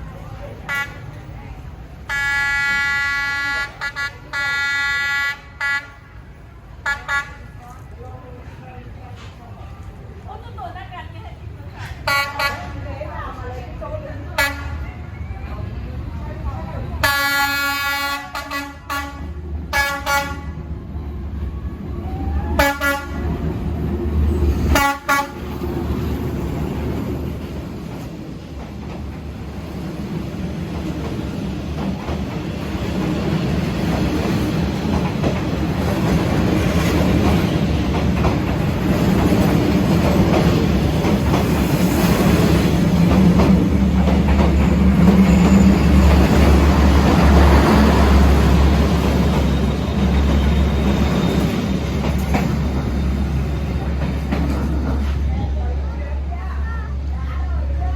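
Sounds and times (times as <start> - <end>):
train rumbling past: 0.0 - 57.9
train horn blasts: 2.1 - 6.2, 14.4 - 14.8, 17.0 - 20.6, 22.6 - 23.3, 24.7 - 25.4.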